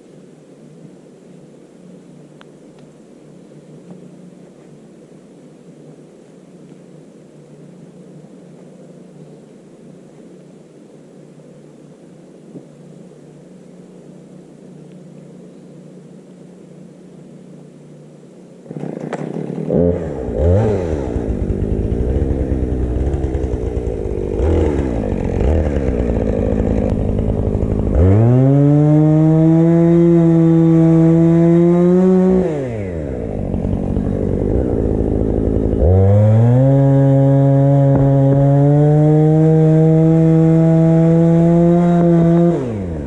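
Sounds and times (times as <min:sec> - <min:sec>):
low steady hum: 0:00.0 - 0:43.0
chainsaw engine revving: 0:18.7 - 0:43.0.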